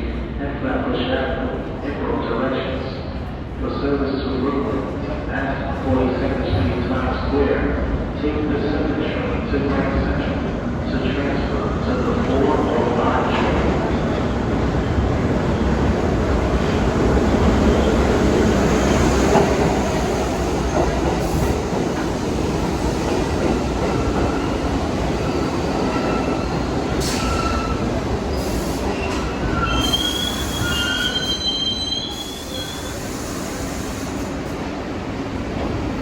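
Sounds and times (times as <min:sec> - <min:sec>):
subway train rumbling on track: 0:00.0 - 0:36.0
high wheel squeals: 0:28.4 - 0:33.8.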